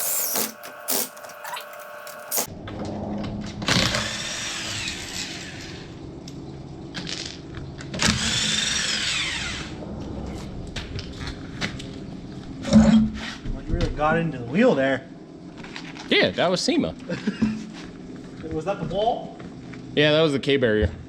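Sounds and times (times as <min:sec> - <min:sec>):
power tool whining: 0:00.0 - 0:02.5, 0:03.6 - 0:06.0, 0:08.0 - 0:09.8.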